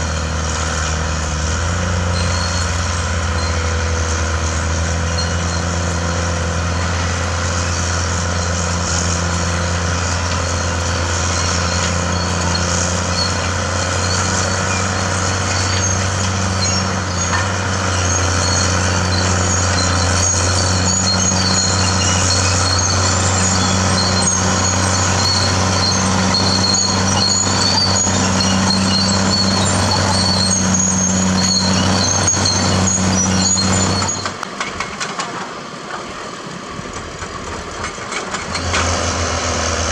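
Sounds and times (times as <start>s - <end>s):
bulldozer diesel engine running: 0.0s - 39.9s
high-pitched squeaks: 2.0s - 6.1s, 8.0s - 34.4s.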